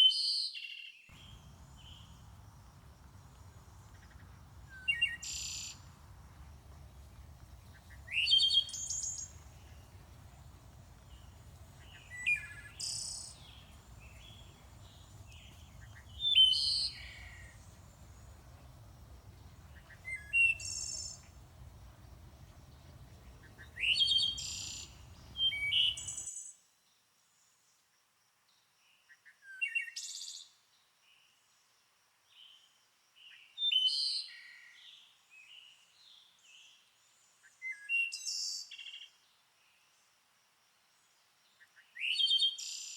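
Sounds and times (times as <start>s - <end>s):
low background rumble: 1.1s - 26.2s
songbird chirping: 1.1s - 26.3s.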